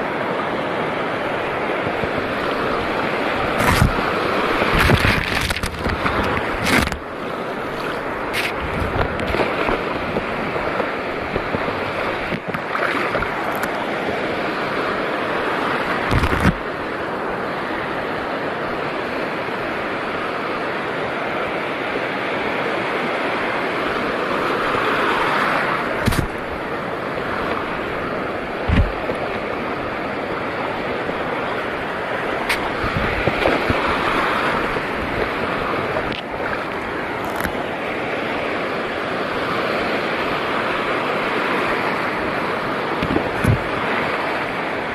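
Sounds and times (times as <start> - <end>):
seawater lapping: 1.4 - 16.8, 24.5 - 44.9
wind on microphone: 1.5 - 13.8, 15.9 - 16.8, 25.7 - 37.6, 39.4 - 44.9.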